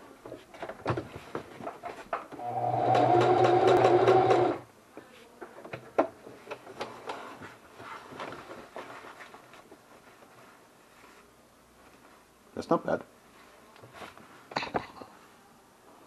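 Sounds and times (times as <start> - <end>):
sewing machine stitching: 2.4 - 4.6.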